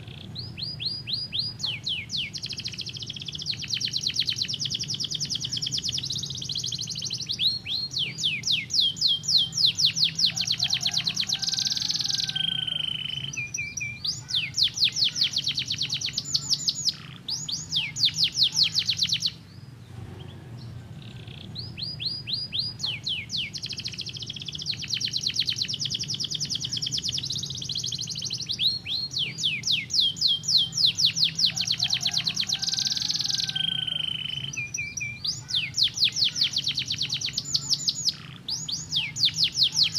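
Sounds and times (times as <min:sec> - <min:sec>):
canary trilling: 0:00.0 - 0:19.5, 0:20.6 - 0:39.9.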